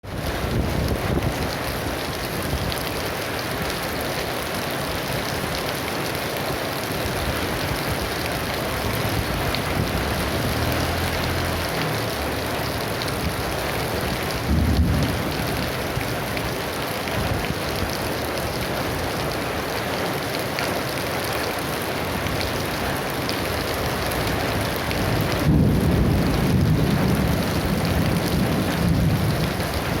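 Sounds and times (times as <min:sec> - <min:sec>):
heavy rain pouring: 0:00.0 - 0:30.0
thunder rumbling: 0:07.4 - 0:16.4, 0:23.7 - 0:30.0.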